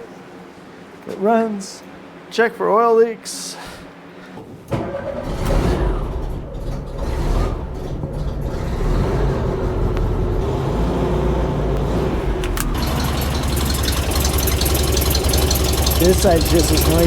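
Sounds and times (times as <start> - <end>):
flat-four engine idling: 4.8 - 10.5, 11.4 - 17.0.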